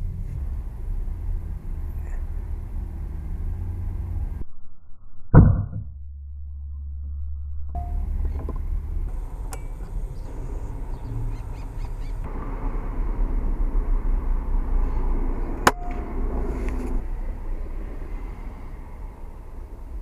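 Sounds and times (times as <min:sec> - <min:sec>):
low outdoor rumble: 0:00.0 - 0:04.6, 0:05.2 - 0:20.0
faint bird calls: 0:09.8 - 0:12.3.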